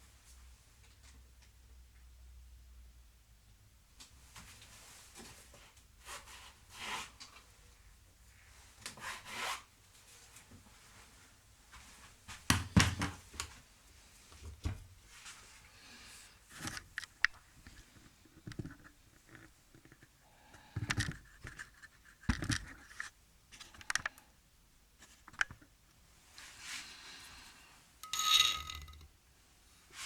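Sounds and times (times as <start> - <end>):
workpiece being handled: 28.0 - 29.1.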